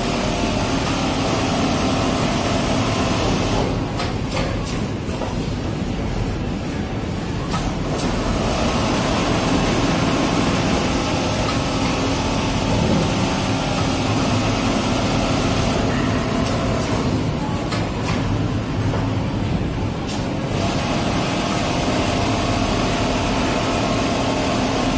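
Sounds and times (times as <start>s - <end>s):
sewing machine running: 7.9s - 17.2s, 20.4s - 24.9s.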